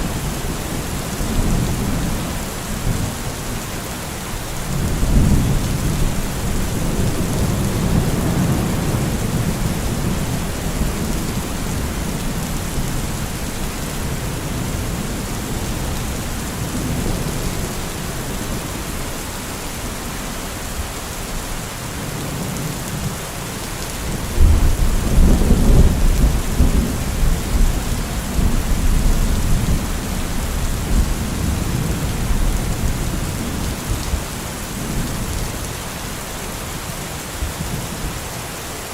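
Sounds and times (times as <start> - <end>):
steady rain falling: 0.0 - 38.9
rolling thunder: 4.6 - 19.0, 24.1 - 34.2.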